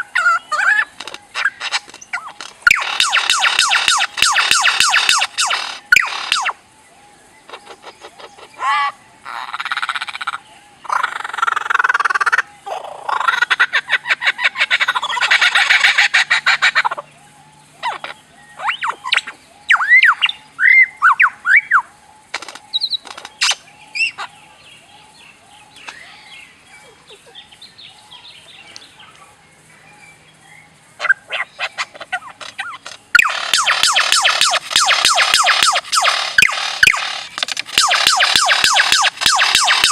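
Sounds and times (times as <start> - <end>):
bird clicking and chirping: 0.0 - 6.6, 22.3 - 23.6, 31.7 - 39.9.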